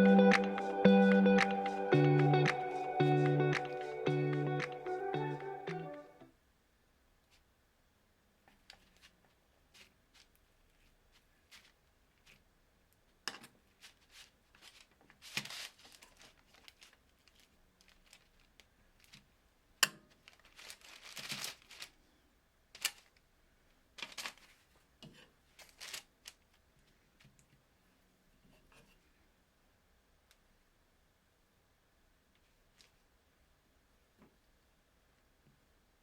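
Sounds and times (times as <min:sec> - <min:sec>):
sharp clicks and taps: 0:00.0 - 0:06.0
rustling and crinkling: 0:08.4 - 0:29.2, 0:32.3 - 0:33.2.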